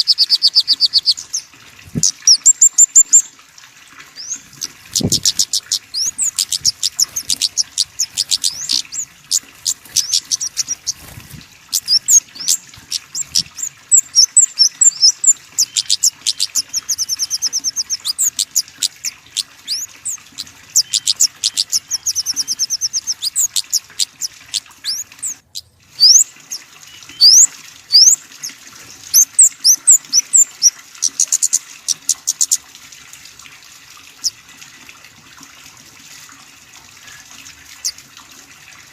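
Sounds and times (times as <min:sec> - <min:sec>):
small songbirds chipping and trilling: 0:00.0 - 0:03.3, 0:04.1 - 0:32.6.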